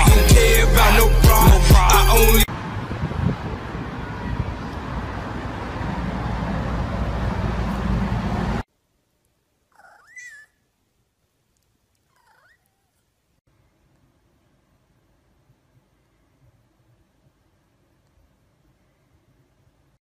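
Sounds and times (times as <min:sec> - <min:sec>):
loud steady rushing noise: 0:02.3 - 0:08.6
cat meowing: 0:12.1 - 0:13.0.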